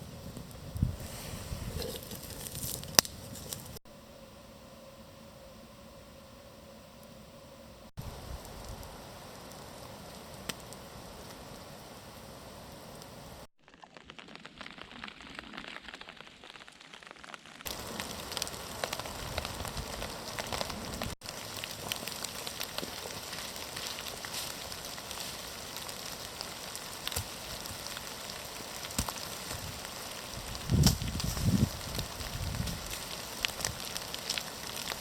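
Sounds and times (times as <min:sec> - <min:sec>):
rain pattering: 0:08.0 - 0:35.0.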